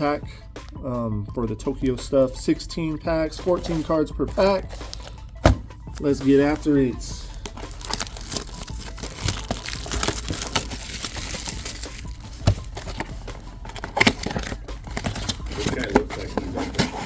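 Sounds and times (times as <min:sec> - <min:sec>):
packaging crinkling and tearing: 0:04.7 - 0:05.2, 0:05.9 - 0:17.0.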